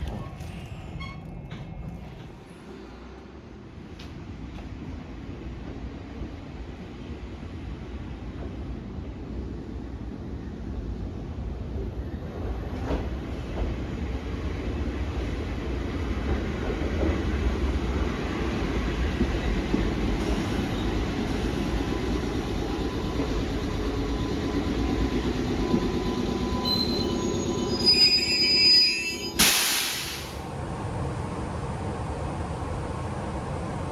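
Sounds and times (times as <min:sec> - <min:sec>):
train wheels squealing: 0:00.0 - 0:02.9, 0:18.9 - 0:30.4
train rumbling on rails: 0:00.0 - 0:33.9
loud burst of noise: 0:29.4 - 0:30.5.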